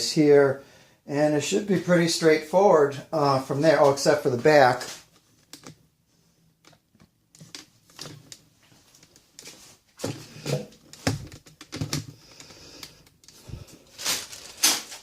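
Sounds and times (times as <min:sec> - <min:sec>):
handling clicks and knocks: 0:06.6 - 0:13.4.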